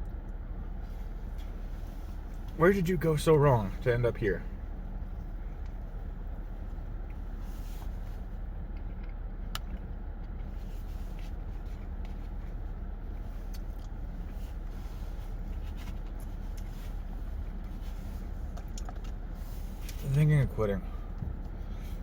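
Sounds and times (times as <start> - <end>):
low vehicle rumble: 0.0 - 22.0
light rustling or scraping: 0.8 - 2.7, 4.8 - 8.6, 10.4 - 22.0.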